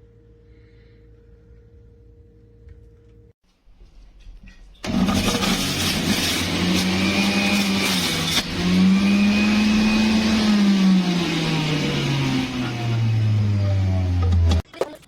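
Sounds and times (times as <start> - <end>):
electric juicer motor whirring: 4.8 - 14.6.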